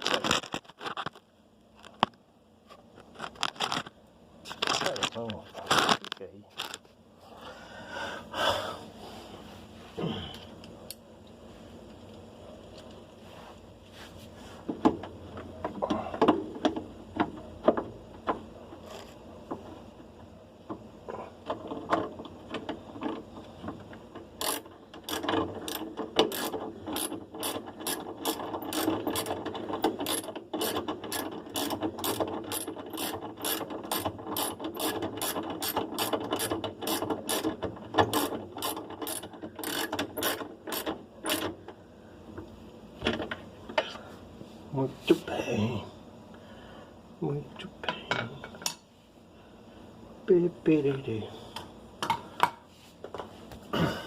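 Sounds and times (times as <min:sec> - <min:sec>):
scattered knocks and clicks: 0:20.6 - 0:41.7
ratchet wrench clicking: 0:24.4 - 0:29.4, 0:30.0 - 0:41.5.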